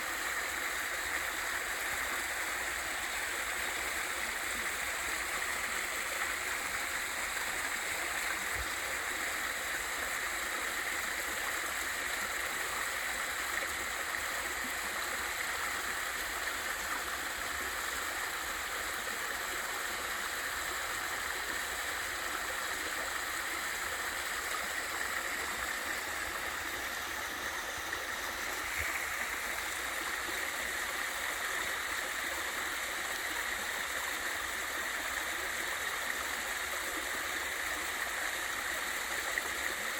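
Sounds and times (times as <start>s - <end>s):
waterfall and stream rushing: 0.0s - 39.9s.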